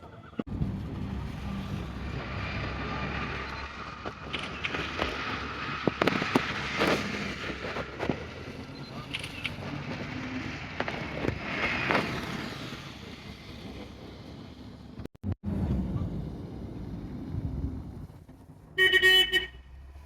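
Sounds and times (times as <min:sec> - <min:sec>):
vehicle running: 0:00.0 - 0:20.0
clicks and clatter: 0:03.6 - 0:08.3, 0:08.9 - 0:10.1.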